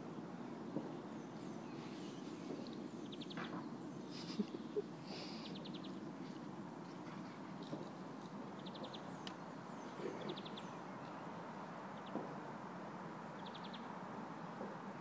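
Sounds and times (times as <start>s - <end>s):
low background hum: 0.0s - 12.5s
bird chirps: 8.6s - 11.2s.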